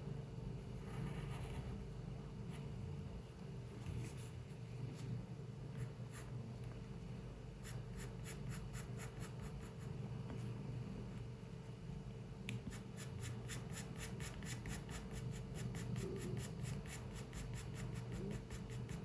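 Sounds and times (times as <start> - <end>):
steady low hum: 0.0 - 19.0
pencil scratching on paper: 5.8 - 6.3, 7.6 - 10.0, 12.7 - 19.0.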